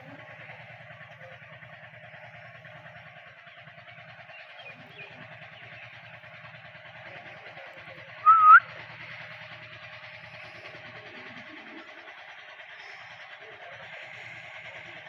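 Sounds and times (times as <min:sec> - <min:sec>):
parrot whistled call: 0:08.2 - 0:08.6.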